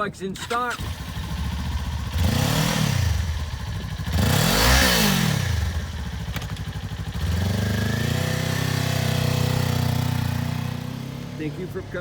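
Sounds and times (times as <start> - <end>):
motorcycle engine revving: 0.4 - 12.0.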